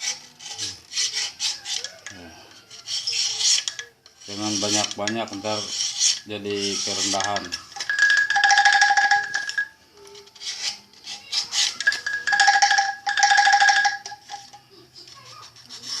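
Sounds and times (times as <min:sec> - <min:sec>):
bamboo angklung rattling: 0:03.5 - 0:09.7, 0:11.4 - 0:14.6.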